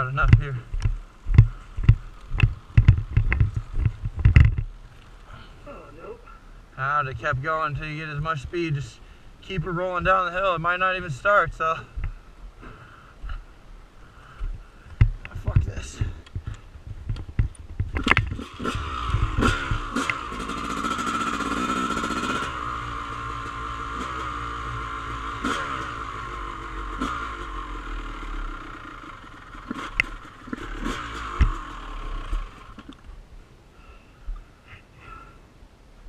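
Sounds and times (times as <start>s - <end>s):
dirt bike engine: 0.0s - 4.7s, 15.0s - 33.2s
knocks and scrapes over rough ground: 0.0s - 5.3s, 14.4s - 22.2s.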